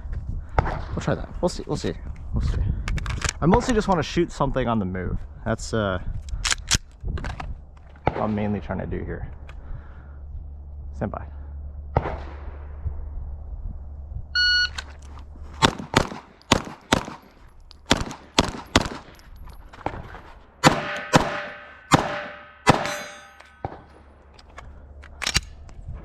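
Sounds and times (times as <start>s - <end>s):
shot timer beep: 14.4s - 14.8s
pistol shots: 15.6s - 19.2s, 20.6s - 24.1s
steel targets ringing: 20.8s - 23.7s.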